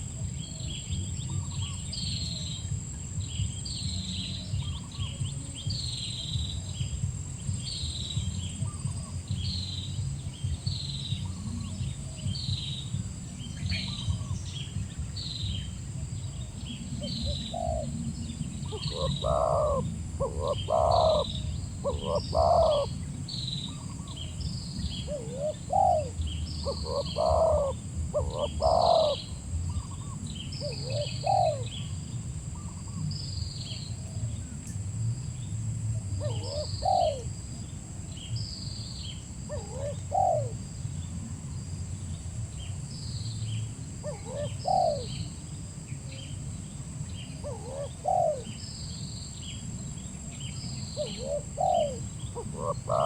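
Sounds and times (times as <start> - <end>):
small birds chirping: 0.0 - 53.0
dove cooing: 16.2 - 31.9, 36.1 - 37.4, 39.5 - 40.6, 44.0 - 45.3, 47.2 - 48.6, 50.8 - 53.0.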